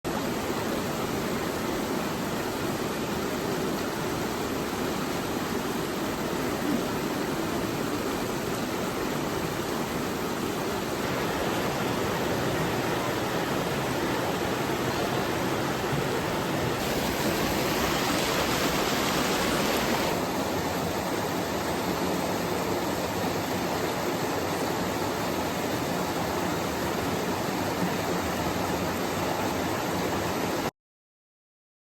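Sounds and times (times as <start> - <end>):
river water rushing over rocks: 0.1 - 30.7.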